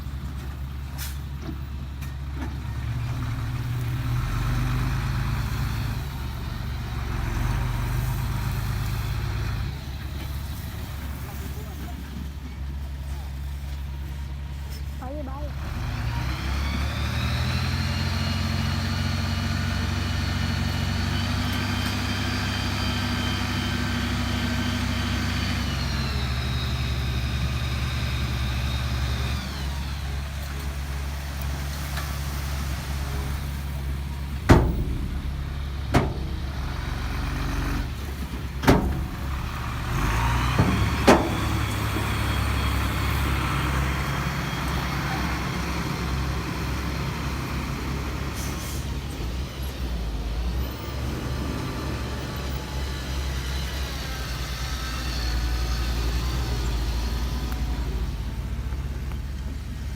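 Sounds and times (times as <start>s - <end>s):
diesel machine engine: 0.0s - 59.9s
sharp metallic clanks: 34.3s - 39.7s.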